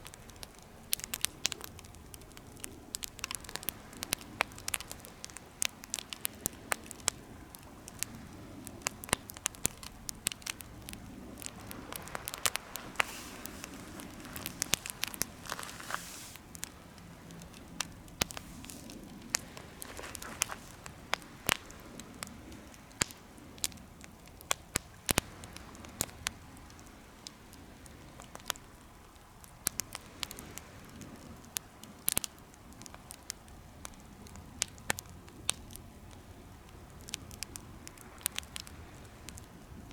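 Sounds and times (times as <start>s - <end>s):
wood fire crackling and popping: 0.0s - 39.9s
soft hissing: 0.7s - 24.0s.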